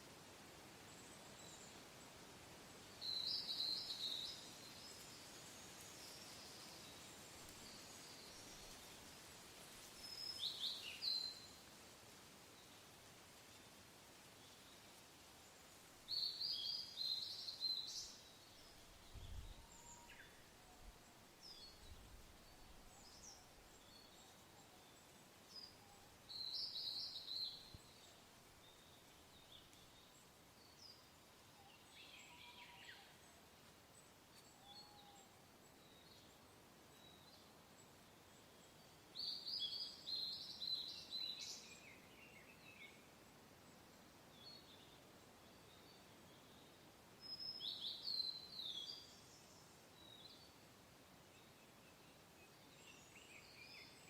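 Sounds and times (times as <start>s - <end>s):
soft wind: 0.0s - 54.0s
songbirds singing: 2.9s - 9.0s, 9.6s - 11.7s, 14.4s - 54.0s.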